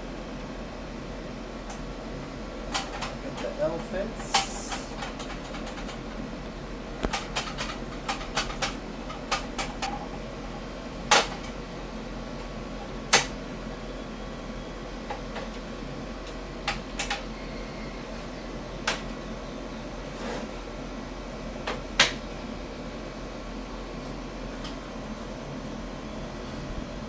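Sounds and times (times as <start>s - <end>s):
low steady hum: 0.0s - 27.0s
clicks and knocks of handling parts: 7.0s - 10.0s.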